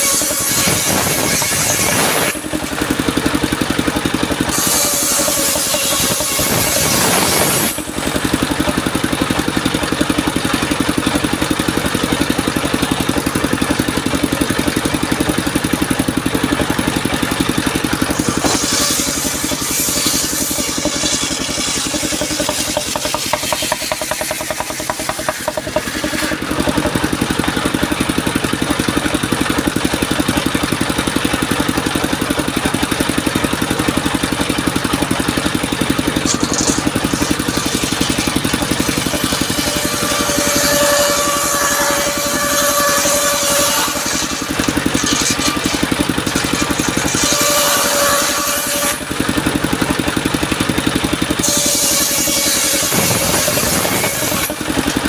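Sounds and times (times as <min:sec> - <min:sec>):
sawmill engine running: 0:00.0 - 0:55.0
saw hiss: 0:18.2 - 0:26.3.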